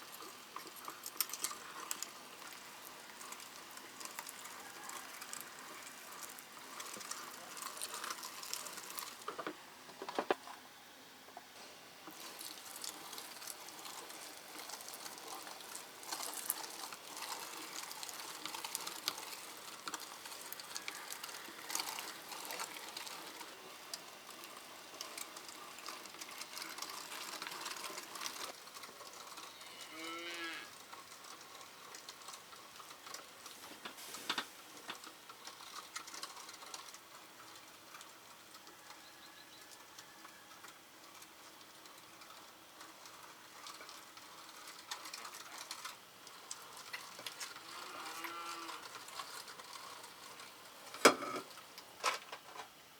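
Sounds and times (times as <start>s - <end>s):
food preparation clicking: 0.0s - 10.5s, 12.1s - 30.0s, 30.8s - 52.8s
farm animal call: 20.4s - 22.7s, 47.6s - 49.0s.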